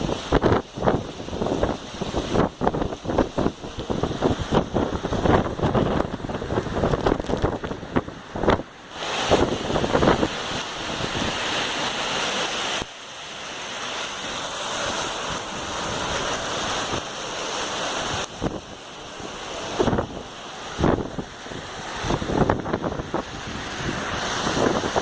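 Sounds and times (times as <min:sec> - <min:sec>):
wind buffeting microphone: 0:00.0 - 0:11.7, 0:18.0 - 0:25.0
heavy rain pouring: 0:00.0 - 0:25.0.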